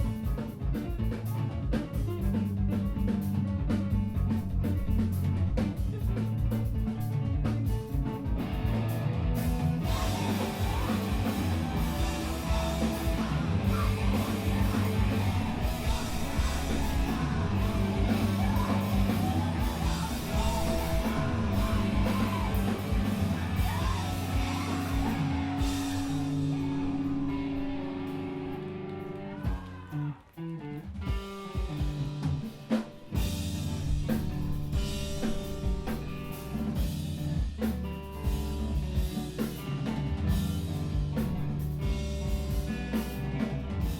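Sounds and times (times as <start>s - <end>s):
bass guitar: 0.0s - 43.9s
distorted guitars: 0.0s - 43.9s
drum kit: 0.0s - 43.9s
person yelling vocals: 10.1s - 27.3s, 29.2s - 30.2s.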